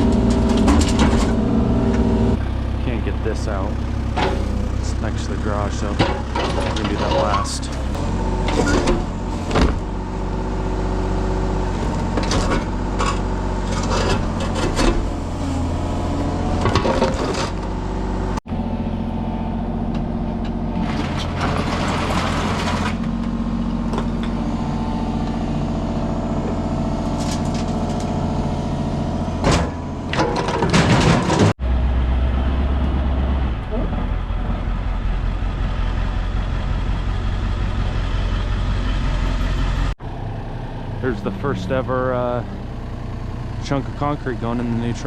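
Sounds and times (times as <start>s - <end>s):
knocks and clanks: 0.0s - 2.4s, 4.1s - 10.0s, 11.8s - 15.3s, 16.3s - 17.7s, 29.4s - 31.6s
construction machine engine running: 0.0s - 45.0s
concrete scraping and crunching: 11.7s - 17.7s.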